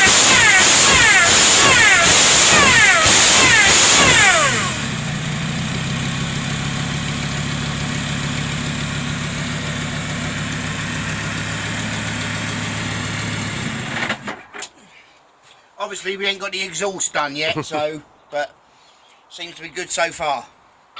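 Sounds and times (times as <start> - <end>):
diesel engine idling: 0.0 - 14.3
supercharger whine: 0.0 - 14.4.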